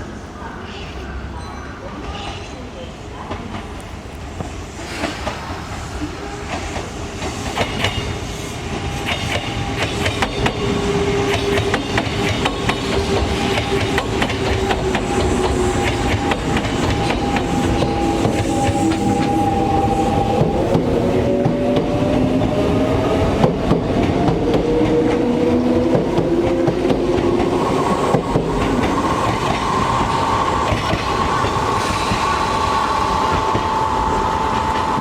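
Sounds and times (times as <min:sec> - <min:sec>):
steady train whine: 0:02.7 - 0:35.0
train wheels clicking over rail joints: 0:08.8 - 0:19.4.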